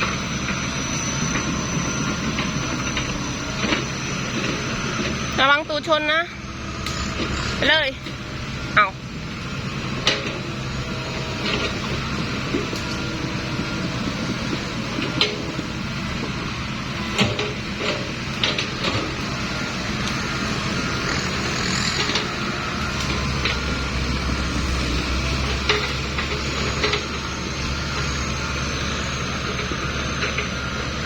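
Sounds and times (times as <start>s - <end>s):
heavy truck engine straining: 0.0s - 31.0s
metallic clanks and knocks: 24.5s - 27.2s.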